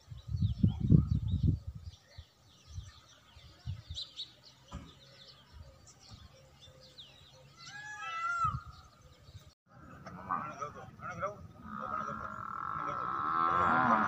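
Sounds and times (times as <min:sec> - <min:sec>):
small birds chirping: 0:00.0 - 0:14.0
rising and falling bird call: 0:04.0 - 0:09.5.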